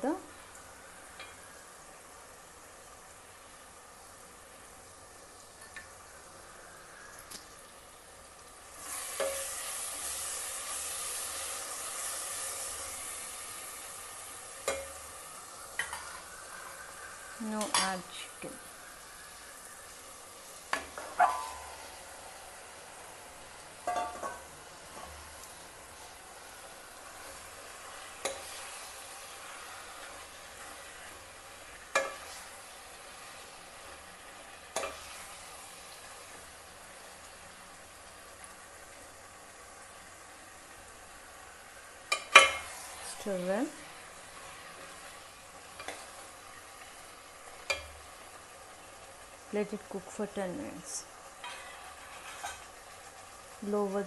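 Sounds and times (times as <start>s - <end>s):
paste sizzling in a pan: 0.0s - 54.0s
spoon knocking against pot: 23.8s - 24.4s
spatula stirring: 31.8s - 32.6s, 51.4s - 52.7s.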